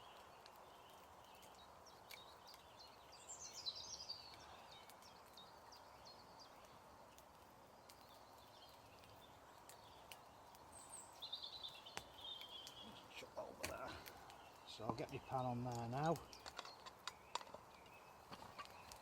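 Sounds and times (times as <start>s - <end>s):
woodland background hiss: 0.0s - 19.0s
faint clicks: 0.1s - 2.8s, 4.2s - 5.4s.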